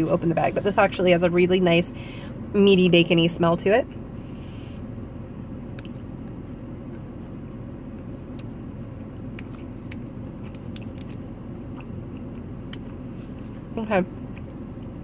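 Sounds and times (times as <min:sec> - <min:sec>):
car cabin hum: 0:00.0 - 0:15.0
person chewing: 0:07.9 - 0:13.5.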